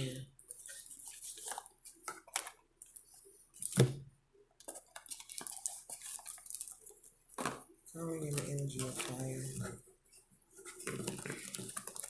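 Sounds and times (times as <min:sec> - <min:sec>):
cards shuffling: 0:00.5 - 0:03.9, 0:04.6 - 0:07.6, 0:10.6 - 0:12.0.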